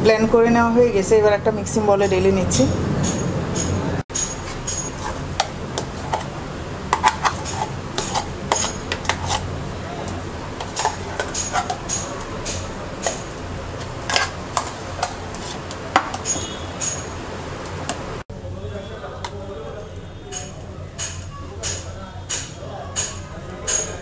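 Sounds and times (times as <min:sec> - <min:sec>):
spoon clinking against blender jar: 0:03.0 - 0:06.3, 0:07.0 - 0:09.4, 0:10.6 - 0:15.2, 0:16.0 - 0:17.2.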